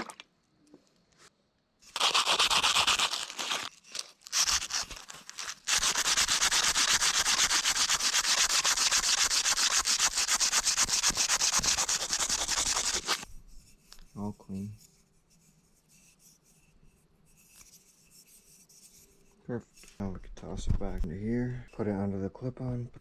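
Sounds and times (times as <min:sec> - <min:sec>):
sandpaper rubbing on metal tube: 0:01.8 - 0:20.0.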